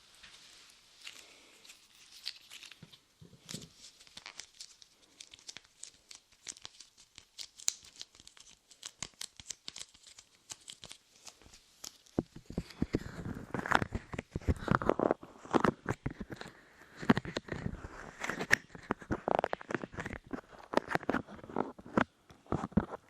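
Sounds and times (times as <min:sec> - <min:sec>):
clay crackling on microphone: 0:00.2 - 0:23.0
microphone handling noises: 0:12.2 - 0:23.0.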